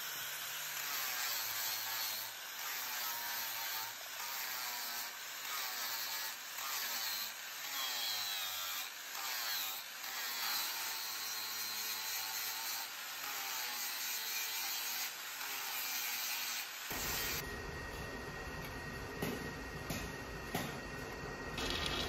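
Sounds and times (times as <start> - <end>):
hand tool rasping steel: 0.7 - 17.4.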